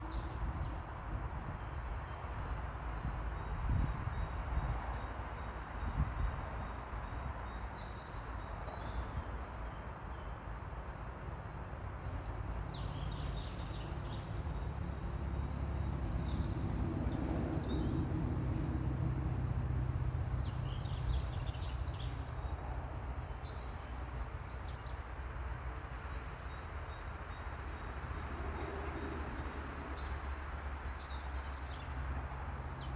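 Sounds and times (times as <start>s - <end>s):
songbirds chirping and trilling: 12.0s - 32.9s.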